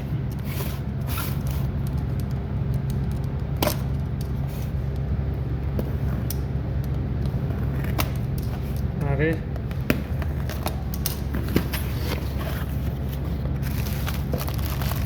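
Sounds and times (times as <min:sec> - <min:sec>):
steady low hum: 0:00.0 - 0:15.0
packaging being handled: 0:10.4 - 0:15.0.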